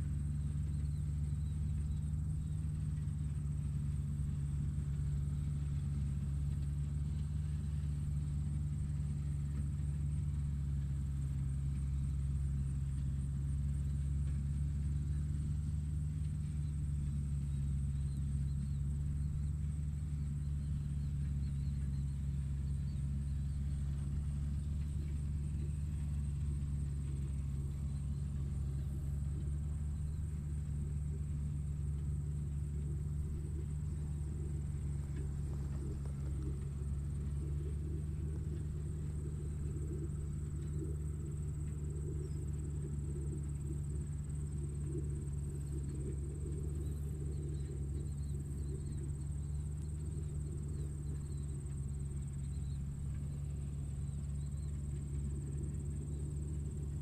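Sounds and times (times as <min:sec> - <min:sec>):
electric motors humming and whining: 0:16.6 - 0:57.0.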